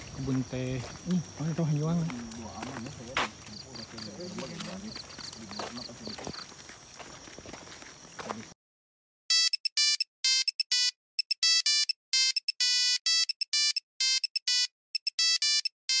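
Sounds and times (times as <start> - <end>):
electronic beeping jingle: 9.3 - 16.0.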